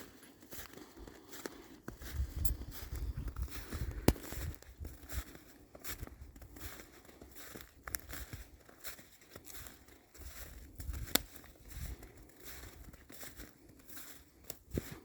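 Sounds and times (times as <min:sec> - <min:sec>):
footsteps crunching through snow: 0:00.0 - 0:15.0.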